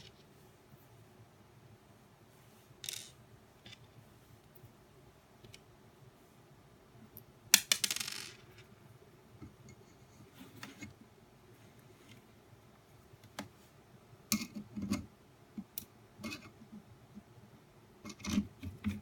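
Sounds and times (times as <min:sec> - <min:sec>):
parts being handled: 0:02.8 - 0:04.0.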